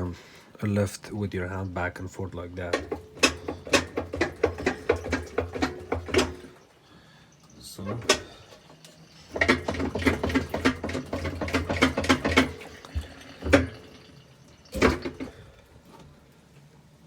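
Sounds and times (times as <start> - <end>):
washer drum clunking and rattling: 2.6 - 6.7, 7.7 - 16.0
washer drum knocking: 2.6 - 6.7, 7.8 - 15.4.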